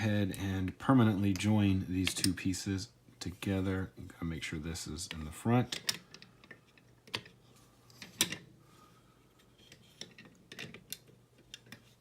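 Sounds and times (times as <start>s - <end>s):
small plastic parts clicking: 10.0s - 11.9s.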